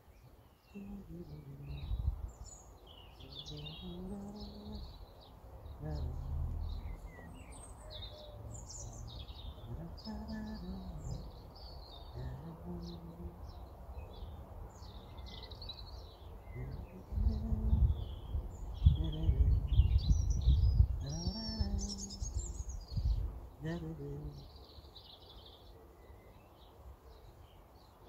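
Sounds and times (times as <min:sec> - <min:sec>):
small birds chirping: 0:00.0 - 0:28.0
low rumble: 0:05.8 - 0:07.6.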